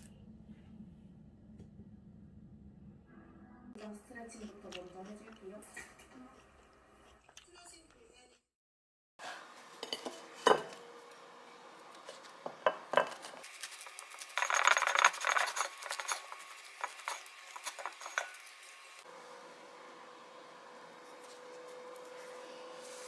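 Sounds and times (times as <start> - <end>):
utensils and dishes clinking: 9.7 - 10.9, 11.9 - 19.0
scraping and rubbing: 13.0 - 19.0.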